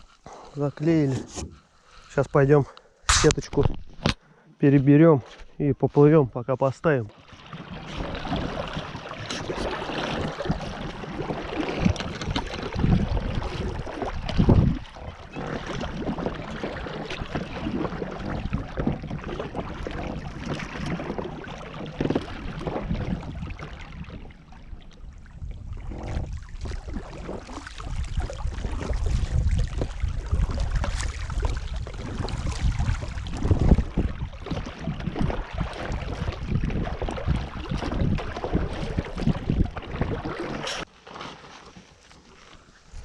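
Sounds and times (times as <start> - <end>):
oars splashing and knocking: 0.0 - 43.0
wind rumbling on microphone: 7.7 - 40.9.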